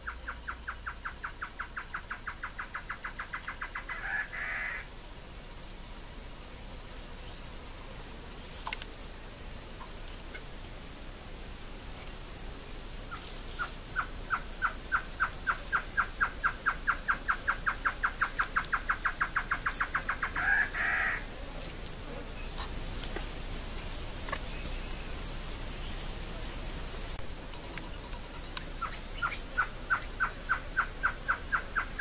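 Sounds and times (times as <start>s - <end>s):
bird calling: 0.0s - 4.9s, 12.6s - 32.0s
high-pitched insect buzz: 0.0s - 32.0s.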